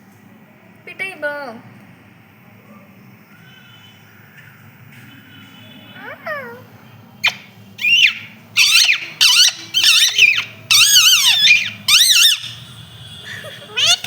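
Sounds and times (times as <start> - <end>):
parrot squeaky calls: 7.2 - 12.7, 13.3 - 14.0.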